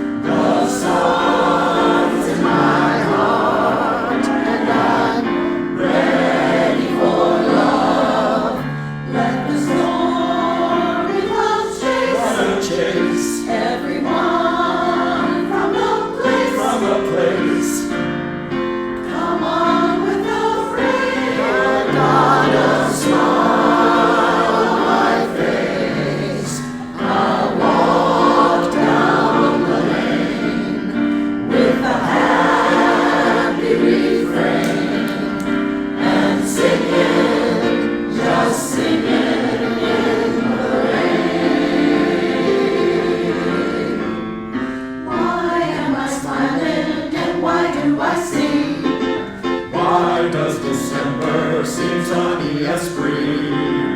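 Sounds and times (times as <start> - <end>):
chorus singing in harmony: 0.0 - 53.9.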